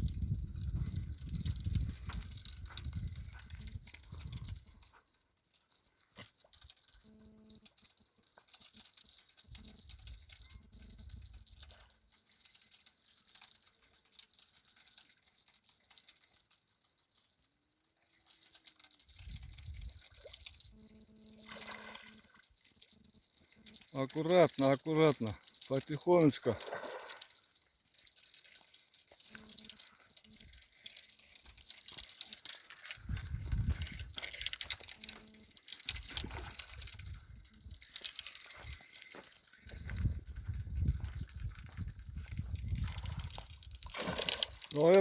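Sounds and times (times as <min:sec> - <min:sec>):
insects chirring: 0:00.0 - 0:45.0.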